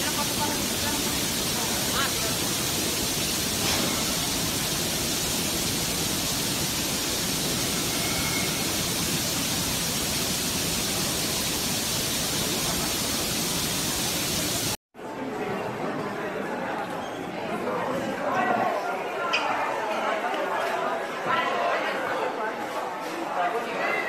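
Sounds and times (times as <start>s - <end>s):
loud rushing water: 0.0s - 14.8s.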